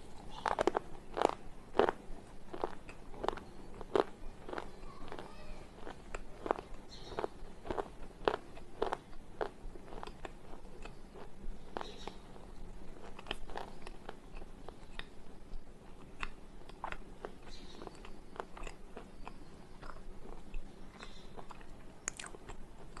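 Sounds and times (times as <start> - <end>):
slate pencil being chewed: 5.8 - 12.2, 13.0 - 15.1, 15.9 - 23.0.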